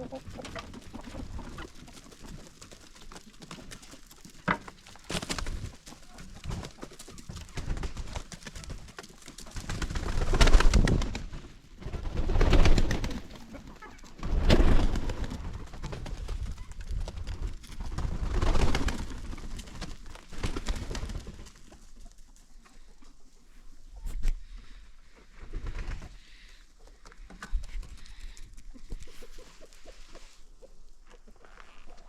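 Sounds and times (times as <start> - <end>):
pigeons cooing: 0.0 - 1.6.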